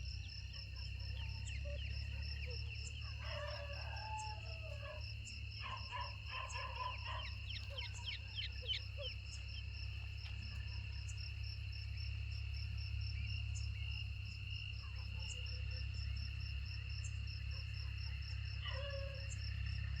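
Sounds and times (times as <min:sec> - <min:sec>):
cricket trilling: 0:00.0 - 0:20.0
chicks peeping: 0:06.3 - 0:10.8.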